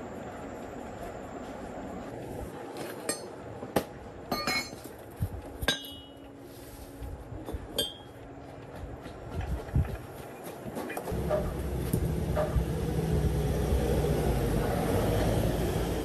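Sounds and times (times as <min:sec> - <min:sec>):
metal tools clinking: 0:04.3 - 0:04.9.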